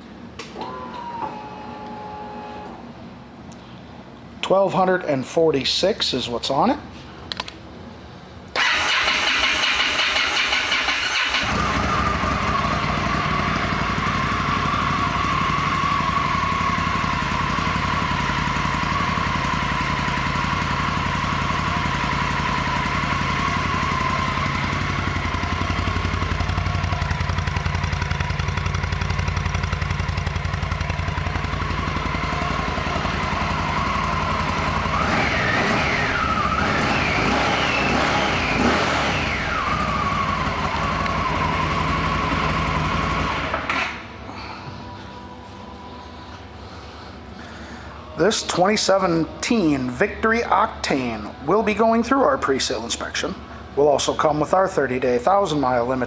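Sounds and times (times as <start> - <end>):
motorcycle engine revving: 8.6 - 44.1
motorcycle engine idling: 11.3 - 45.7.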